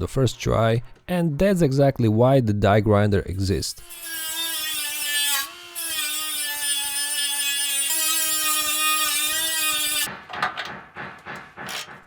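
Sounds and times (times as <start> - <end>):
die grinder grinding steel: 3.8 - 10.1.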